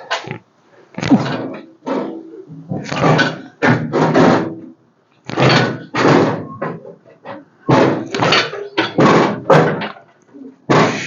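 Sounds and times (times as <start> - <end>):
metallic clunks and scrapes: 1.0 - 4.7, 5.3 - 10.1.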